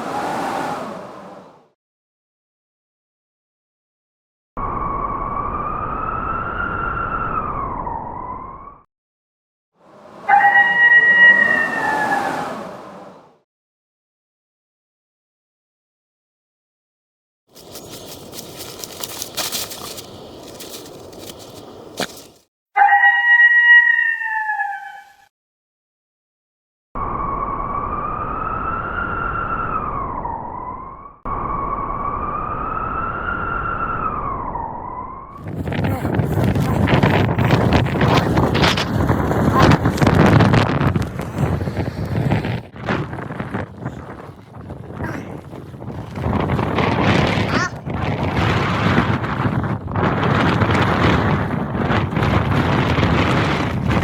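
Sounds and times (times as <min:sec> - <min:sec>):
howling blizzard wind: 0:00.0 - 0:01.8, 0:04.6 - 0:08.8, 0:09.8 - 0:13.4, 0:17.6 - 0:22.4, 0:27.0 - 0:54.0.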